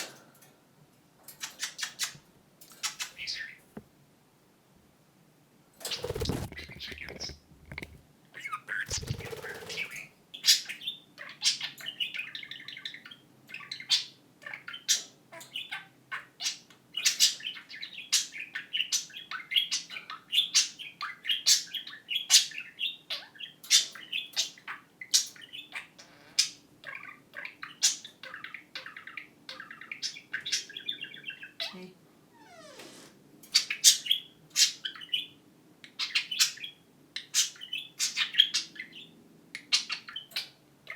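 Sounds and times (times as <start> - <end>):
budgerigars chattering: 5.9 - 10.7.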